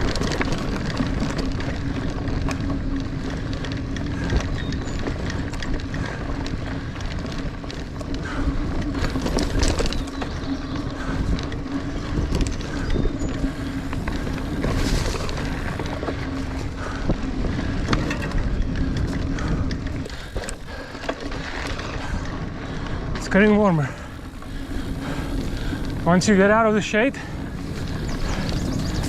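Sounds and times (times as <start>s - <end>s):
bike chain rattling: 0.0s - 29.0s
knobby tires crunching on dirt: 0.0s - 29.0s
wind noise on microphone: 0.0s - 29.0s
steady low buzz: 23.9s - 29.0s.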